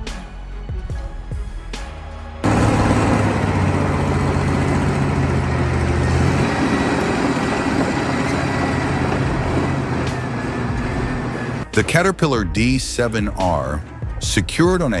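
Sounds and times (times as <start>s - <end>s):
heavy vehicle engine low hum: 2.4s - 11.8s
rushing noise: 2.4s - 12.1s.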